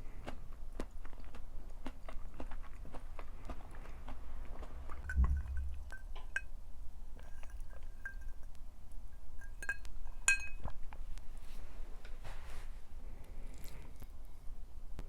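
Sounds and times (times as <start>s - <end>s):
soft thump: 5.1s - 6.2s
tableware clinking: 9.4s - 10.7s.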